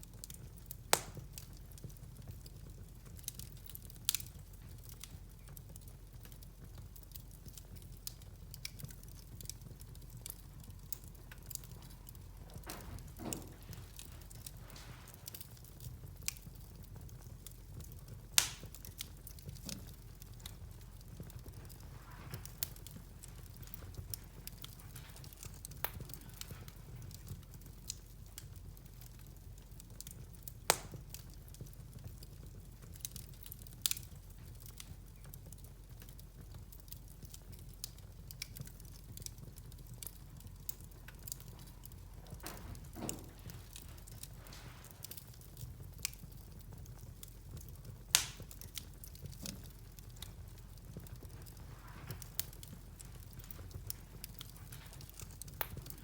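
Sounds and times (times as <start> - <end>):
fire pops: 0.0 - 56.0
wood fire crackling: 0.0 - 56.0.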